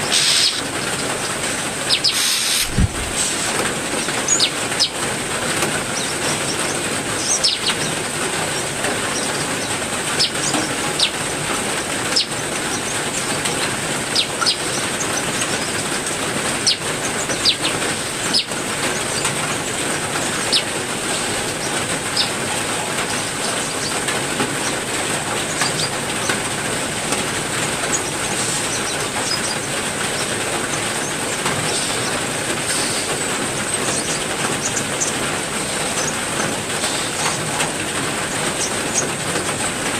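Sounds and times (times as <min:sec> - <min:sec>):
songbirds chirping: 0:00.0 - 0:26.5, 0:27.7 - 0:37.5
heavy rain: 0:00.0 - 0:39.9.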